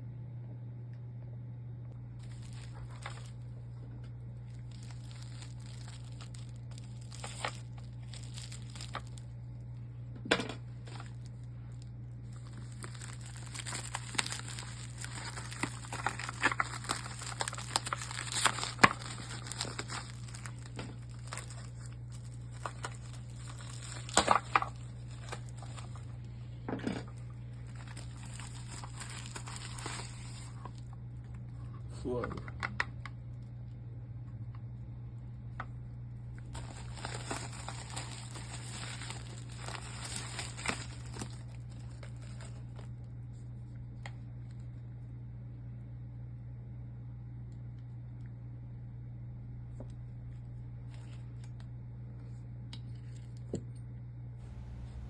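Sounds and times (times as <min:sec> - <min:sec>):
steady low hum: 0:00.0 - 0:55.0
plastic packaging crinkling: 0:02.2 - 0:31.4, 0:36.3 - 0:44.8, 0:50.8 - 0:51.6, 0:54.4 - 0:55.0.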